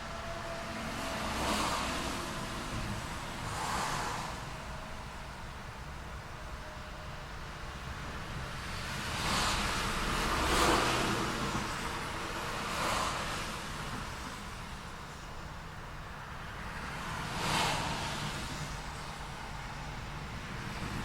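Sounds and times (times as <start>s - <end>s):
cars passing: 0.0s - 21.0s
low rumble of road noise: 0.0s - 21.0s.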